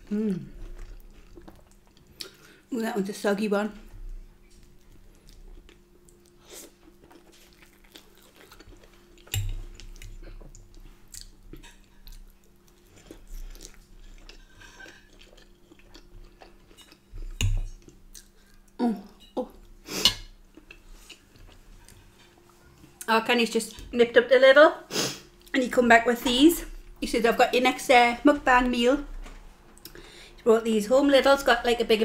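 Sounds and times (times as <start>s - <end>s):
chewing soft food: 0.3s - 2.6s, 4.4s - 18.8s.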